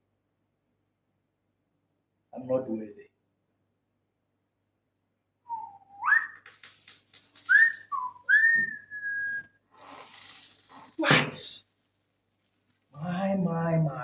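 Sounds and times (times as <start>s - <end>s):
man whistling: 5.5s - 6.4s, 7.4s - 9.6s
soft rustle: 6.4s - 8.1s, 9.7s - 13.0s.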